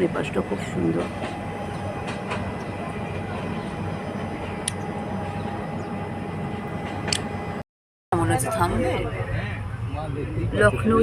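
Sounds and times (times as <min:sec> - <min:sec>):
train running rumble: 0:00.0 - 0:07.6.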